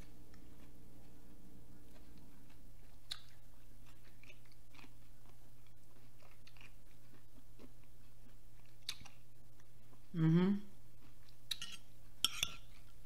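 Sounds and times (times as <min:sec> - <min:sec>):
chewing with wet mouth clicks: 0:00.0 - 0:10.0
steady low hum: 0:00.0 - 0:13.0.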